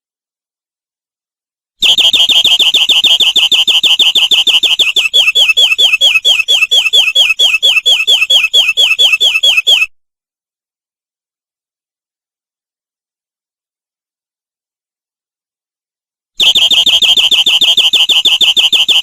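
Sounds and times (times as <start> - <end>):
canary singing trills: 2.6 - 9.9.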